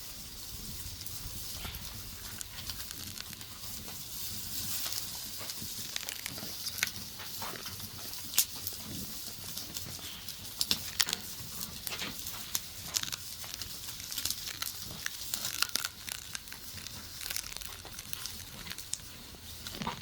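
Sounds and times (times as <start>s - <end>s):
faint low background hum: 0.0s - 20.0s
crinkling and crackling clicks: 0.8s - 20.0s.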